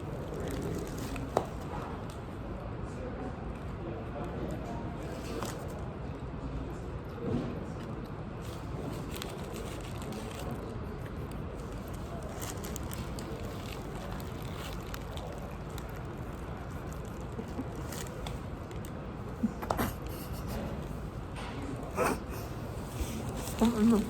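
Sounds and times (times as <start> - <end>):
paper wrappers crackling: 0.0 - 1.9, 8.4 - 21.1, 22.5 - 24.0
room noise: 0.0 - 24.0.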